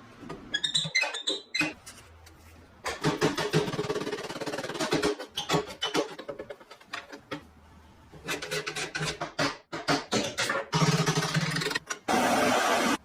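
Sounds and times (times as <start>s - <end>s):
hand tools scraping metal: 8.2s - 9.4s.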